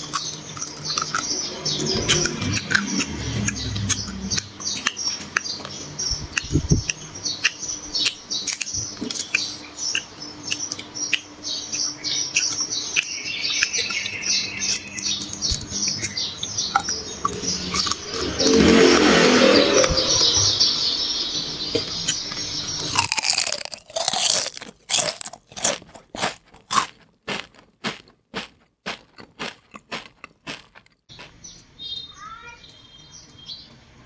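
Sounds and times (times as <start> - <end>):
crunchy food chewing: 0.0 - 19.2, 21.8 - 31.6.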